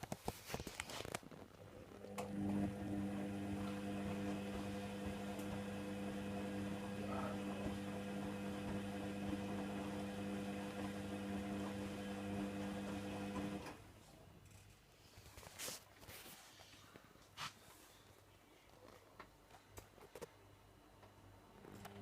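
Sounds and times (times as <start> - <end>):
washer dryer motor hum: 1.9 - 13.8.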